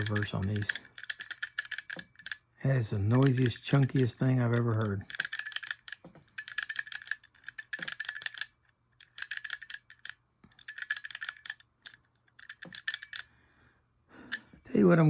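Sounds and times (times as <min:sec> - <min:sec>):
fishing reel rapid clicking: 0:00.0 - 0:02.4, 0:03.1 - 0:08.5, 0:09.1 - 0:11.6.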